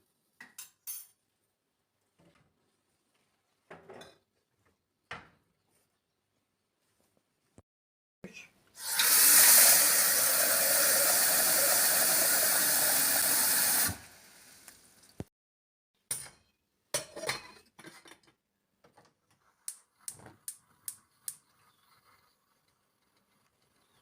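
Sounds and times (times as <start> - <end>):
water running from tap: 8.8 - 14.7.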